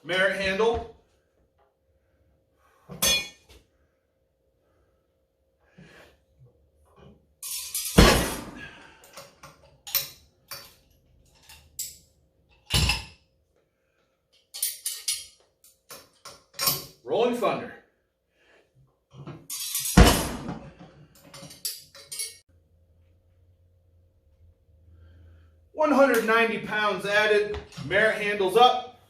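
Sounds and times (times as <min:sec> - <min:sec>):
metal crash with ringing: 0:07.4 - 0:08.7.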